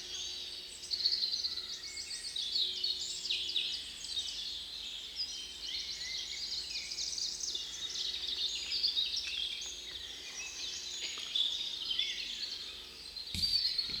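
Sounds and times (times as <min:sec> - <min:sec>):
songbirds chirping in chorus: 0:00.0 - 0:14.0
knock: 0:13.4 - 0:14.0.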